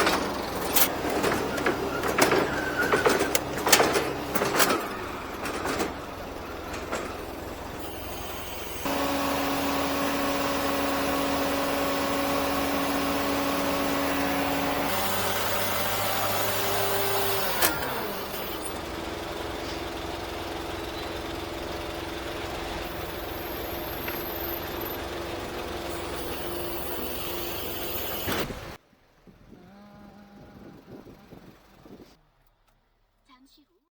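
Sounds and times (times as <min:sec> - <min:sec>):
hydraulic lift whine: 0:00.0 - 0:28.8
truck engine running: 0:00.0 - 0:33.2.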